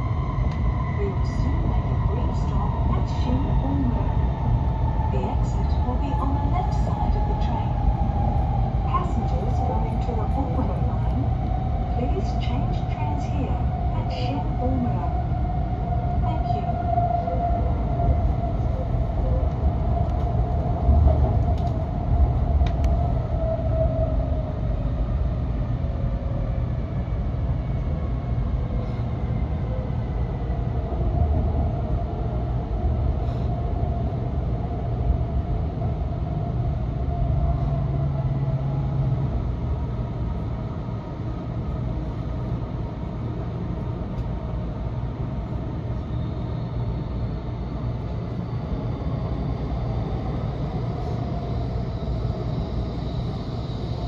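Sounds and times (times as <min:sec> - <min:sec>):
train cabin running noise: 0:00.0 - 0:54.0
faint whine: 0:44.2 - 0:54.0.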